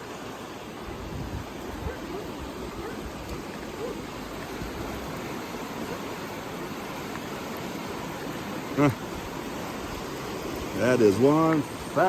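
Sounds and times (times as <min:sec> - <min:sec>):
creek rushing: 0:00.0 - 0:12.0.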